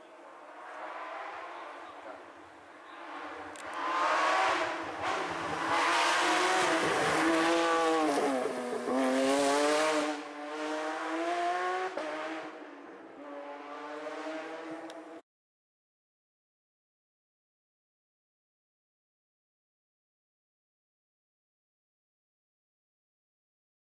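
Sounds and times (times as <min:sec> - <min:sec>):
rally car engine at high revs: 0:02.9 - 0:15.2.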